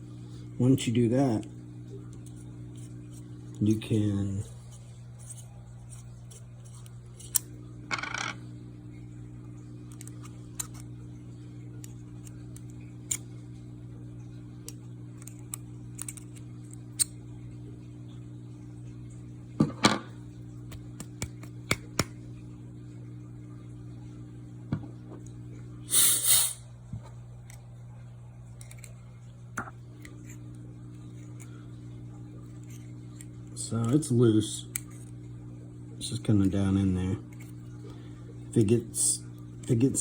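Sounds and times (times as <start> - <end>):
low electrical hum: 0.0 - 40.0
metal snips clicking and scraping: 5.2 - 7.5, 14.6 - 17.1, 28.6 - 29.0.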